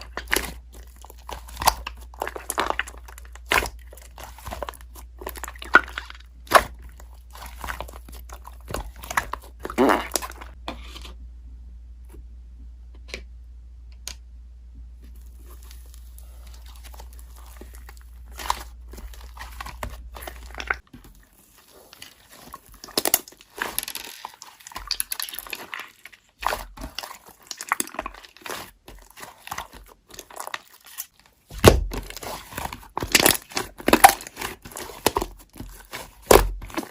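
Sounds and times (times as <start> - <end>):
slime crackling and popping: 0.0 - 10.6, 15.4 - 36.9
steady low hum: 0.0 - 20.9.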